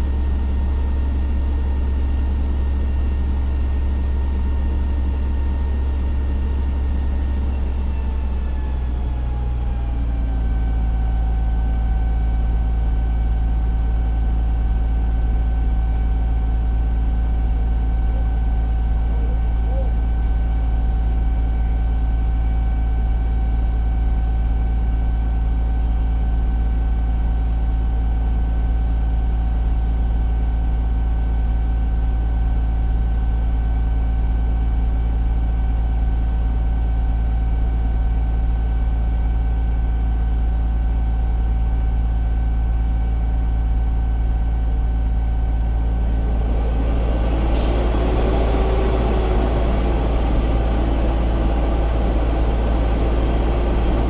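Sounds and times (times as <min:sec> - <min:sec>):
diesel engine humming: 0:00.0 - 0:23.2, 0:40.8 - 0:54.0.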